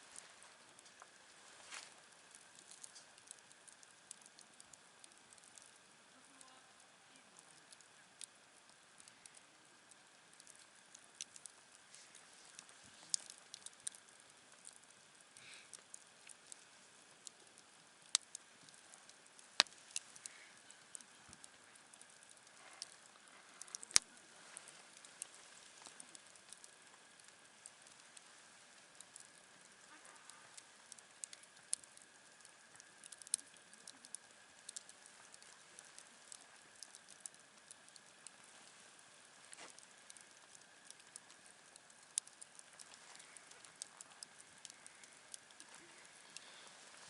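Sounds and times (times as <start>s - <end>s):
campfire crackling and popping: 0.0s - 47.0s.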